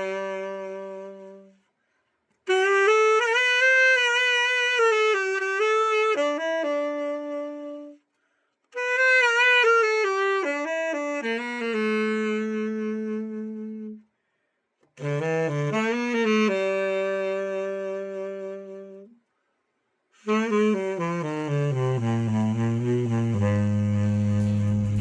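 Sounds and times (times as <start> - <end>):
tenor saxophone melody: 0.0 - 1.7, 2.4 - 8.1, 8.7 - 14.1, 14.9 - 19.2, 20.2 - 25.0.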